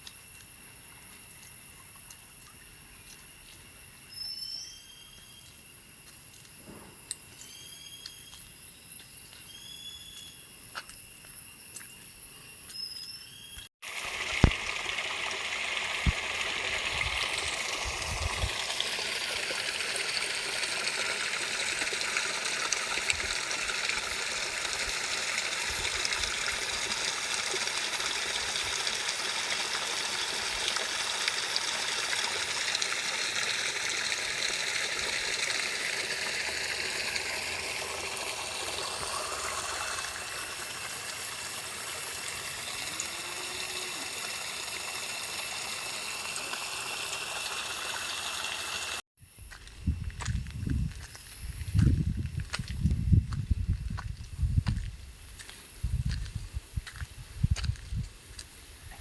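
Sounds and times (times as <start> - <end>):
bird chirps: 4.1 - 5.6, 7.3 - 10.5, 11.7 - 13.7
rushing water: 13.8 - 49.0.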